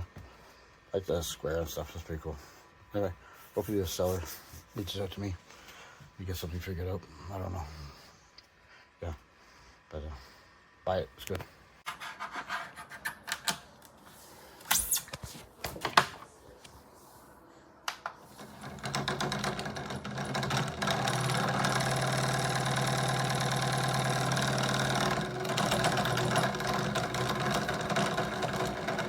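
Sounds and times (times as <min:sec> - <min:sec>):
small fan motor humming: 0:17.8 - 0:29.0.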